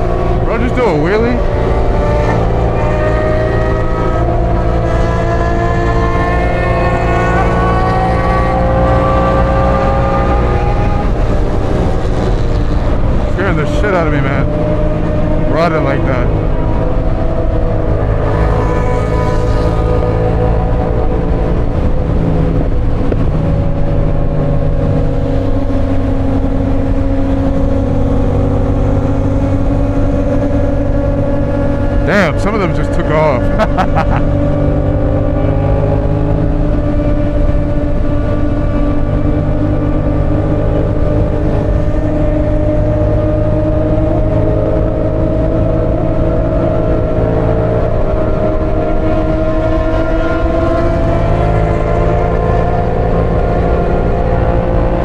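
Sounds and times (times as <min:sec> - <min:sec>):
wind rush on microphone: 0:00.0 - 0:15.5, 0:16.1 - 0:32.1, 0:33.4 - 0:55.0.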